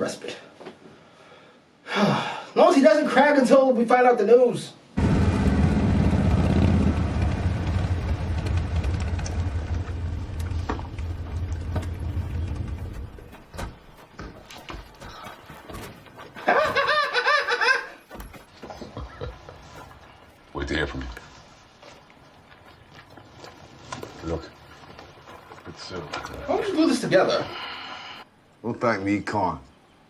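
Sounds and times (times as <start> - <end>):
vehicle engine rumbling: 5.0 - 17.0
burst of laughter: 16.4 - 18.0.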